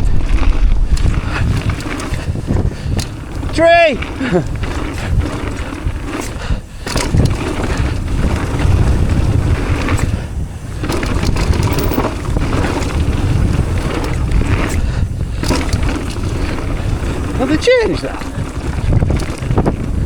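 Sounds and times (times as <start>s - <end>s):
bike rattling: 0.0s - 20.0s
tyres on dirt: 0.0s - 20.0s
wind rushing over microphone: 0.0s - 20.0s.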